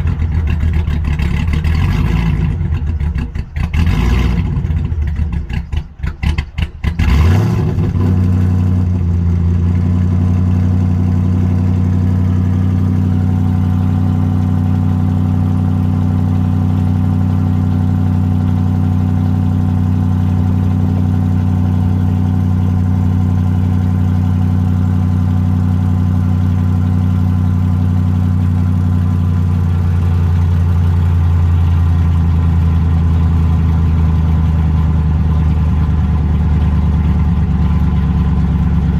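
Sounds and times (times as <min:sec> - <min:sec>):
car engine starting and idling: 0:00.0 - 0:38.9.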